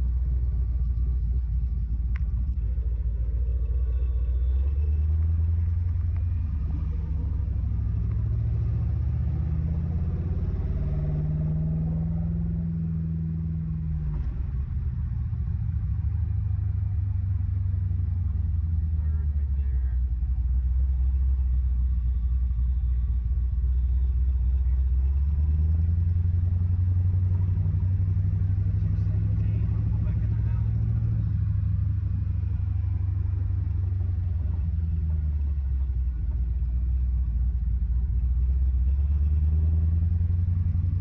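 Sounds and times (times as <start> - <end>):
car engine rumbling: 0.0 - 41.0.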